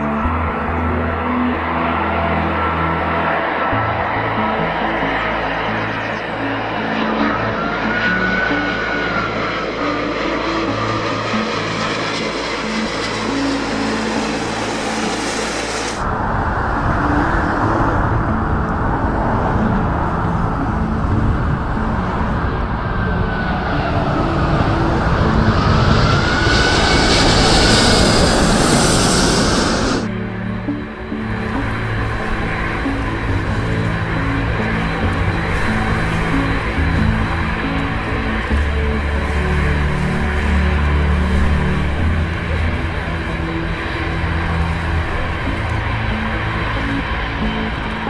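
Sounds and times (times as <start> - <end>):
airliner engine rushing: 0.0 - 48.0.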